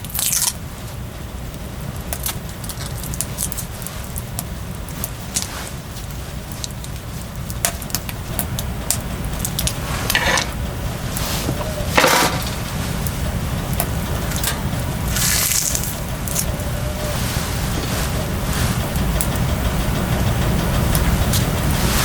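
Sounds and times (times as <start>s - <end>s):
sharp snaps and crackles: 0.0s - 22.0s
rustling bursts: 0.1s - 22.0s
low rumble: 1.0s - 22.0s.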